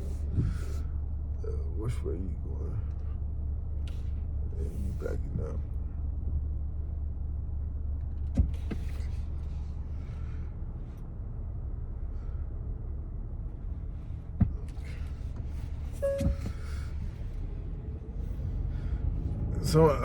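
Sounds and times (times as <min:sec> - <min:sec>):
car cabin rumble: 0:00.0 - 0:20.0
short tone: 0:16.0 - 0:16.9.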